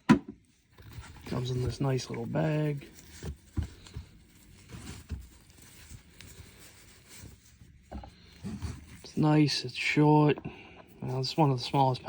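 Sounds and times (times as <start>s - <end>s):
soft rustling of bag: 0.5s - 12.0s.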